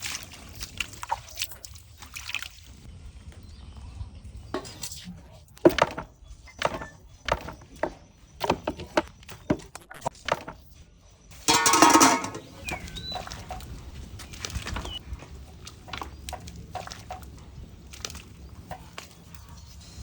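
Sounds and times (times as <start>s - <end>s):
water sloshing in a pot: 0.0s - 2.9s, 11.4s - 20.0s
water splashing: 0.0s - 2.9s, 11.4s - 20.0s
sharp knocks on a pot: 11.5s - 12.6s.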